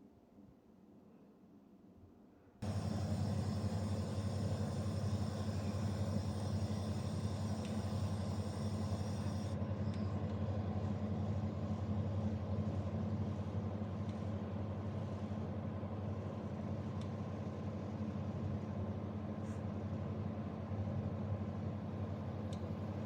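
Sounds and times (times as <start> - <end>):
air conditioner humming: 2.2 - 23.0
high hiss: 2.6 - 9.6.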